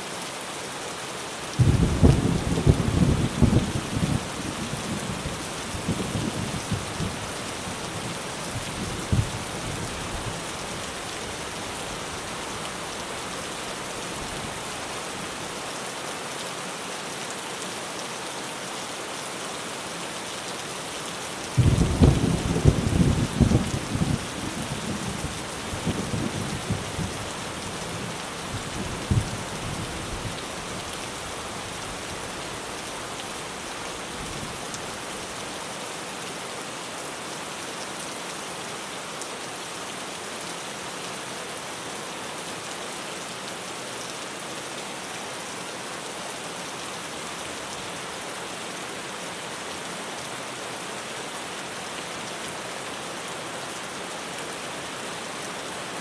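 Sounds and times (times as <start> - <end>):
heavy rain on a tin roof: 0.0 - 56.0
thunder rumble: 1.6 - 4.2, 21.6 - 24.3.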